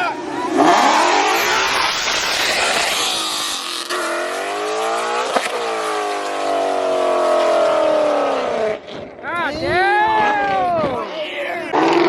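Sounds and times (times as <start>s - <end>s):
car engine at high revs: 0.0s - 9.1s, 11.7s - 12.0s.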